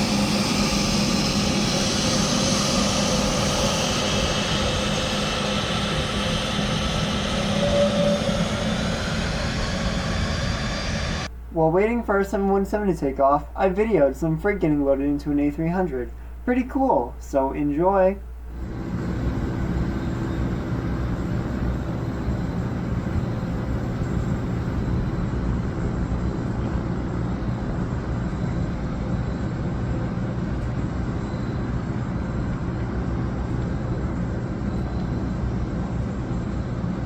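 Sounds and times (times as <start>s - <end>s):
even rushing noise: 0.0s - 11.7s
low machinery hum: 0.0s - 37.0s.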